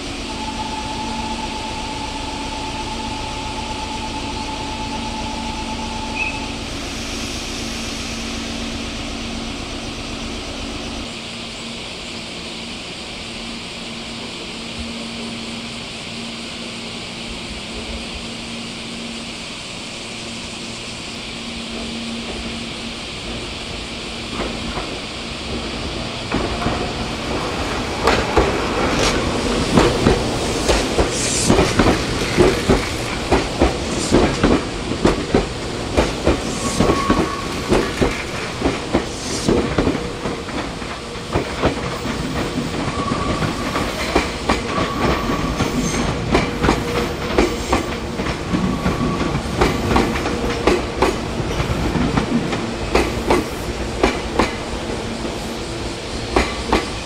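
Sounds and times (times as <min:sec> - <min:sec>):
train rumble: 0:00.0 - 0:57.0
train wheels clacking: 0:24.3 - 0:57.0.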